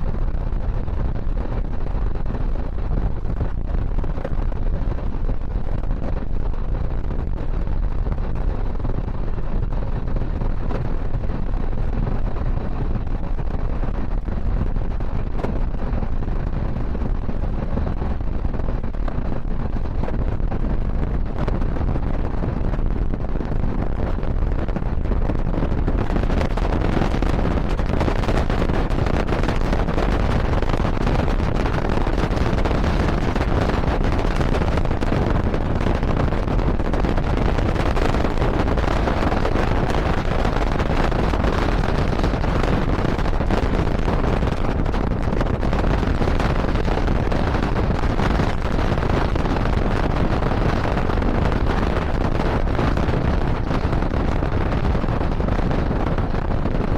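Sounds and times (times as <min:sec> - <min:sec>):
wind on microphone: 0:00.0 - 0:56.9.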